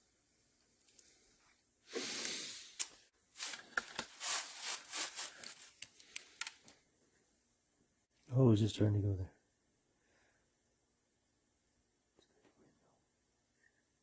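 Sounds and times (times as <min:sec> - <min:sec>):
solder sizzling and crackling: 0:00.0 - 0:06.9.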